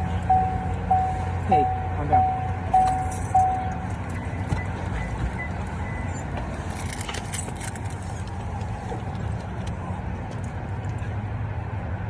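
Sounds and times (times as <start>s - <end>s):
car engine rumble: 0.0s - 12.0s
light jingling clicks: 2.6s - 11.1s.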